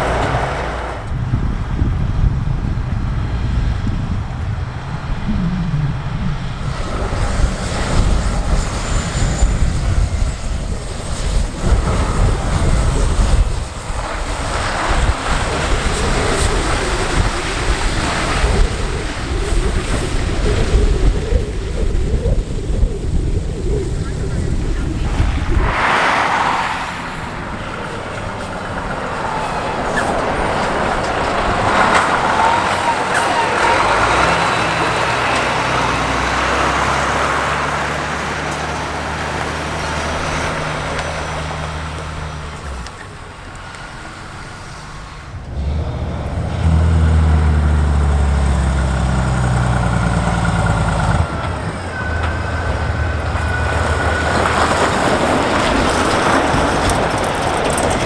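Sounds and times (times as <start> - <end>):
heavy trucks engine drone: 0.0 - 58.0
tyre and road noise: 0.0 - 58.0.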